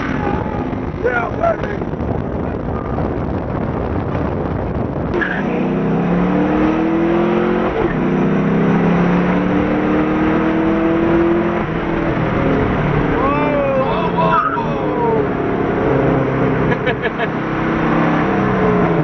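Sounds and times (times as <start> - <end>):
car engine accelerating hard: 0.0 - 19.0.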